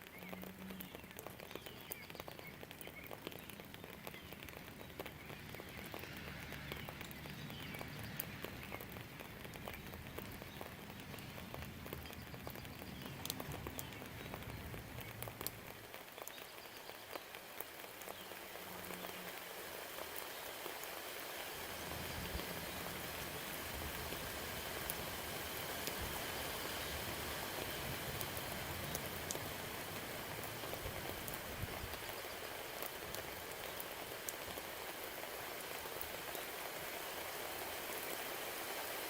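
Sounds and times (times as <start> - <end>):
rain falling: 0.0 - 39.0
drops ticking on a surface: 0.1 - 16.4.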